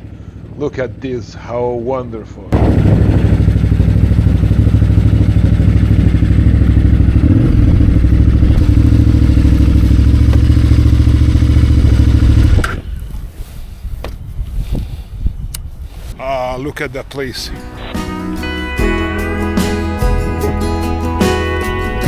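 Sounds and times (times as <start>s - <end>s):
motorcycle engine running loud: 2.6s - 12.8s.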